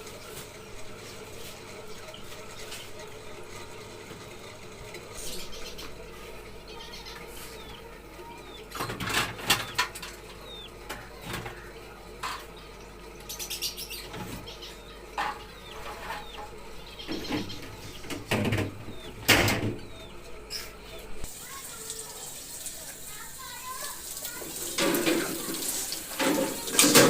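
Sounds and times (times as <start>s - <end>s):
small birds chirping: 0.0s - 24.4s
plastic containers clattering: 15.2s - 19.8s, 26.2s - 27.0s.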